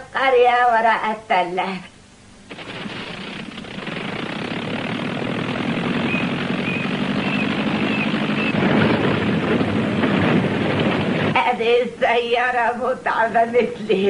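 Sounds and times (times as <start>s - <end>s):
old car engine running: 2.5s - 11.5s.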